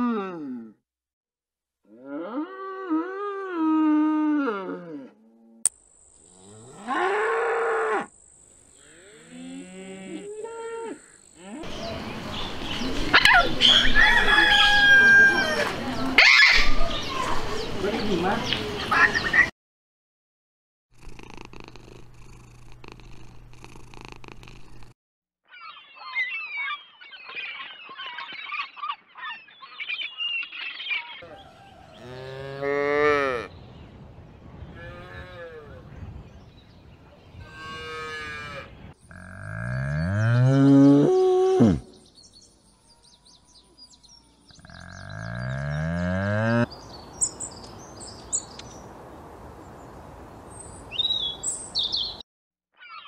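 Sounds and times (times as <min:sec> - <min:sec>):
cattle mooing: 0:31.9 - 0:33.5, 0:37.4 - 0:41.8, 0:44.6 - 0:46.7.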